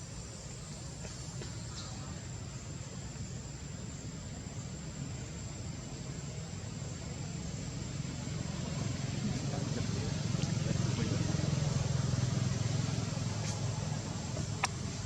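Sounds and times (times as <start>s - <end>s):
low motor rumble: 0.0s - 15.0s
steady hiss: 0.0s - 15.0s.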